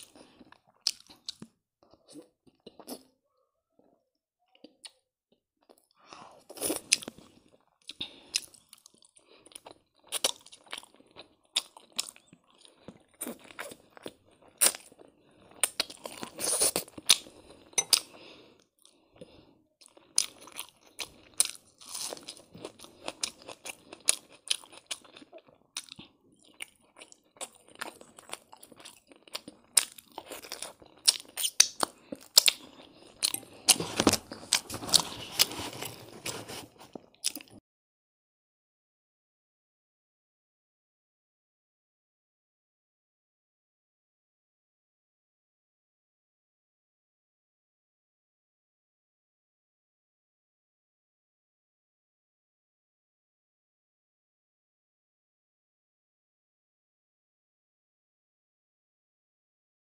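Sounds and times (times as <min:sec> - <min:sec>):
chewing with wet clicks: 0:18.9 - 0:33.8.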